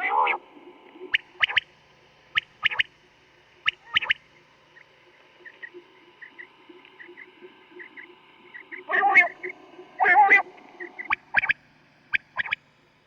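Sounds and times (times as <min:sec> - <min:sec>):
quail calling: 0:00.0 - 0:00.4, 0:02.3 - 0:02.9, 0:03.6 - 0:04.2, 0:05.5 - 0:11.6, 0:12.2 - 0:12.6.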